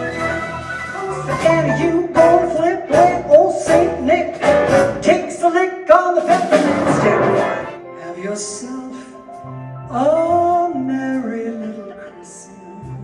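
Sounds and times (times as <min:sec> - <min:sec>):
symphony orchestra playing: 0:00.0 - 0:05.4, 0:06.2 - 0:08.8
person singing: 0:01.3 - 0:13.0.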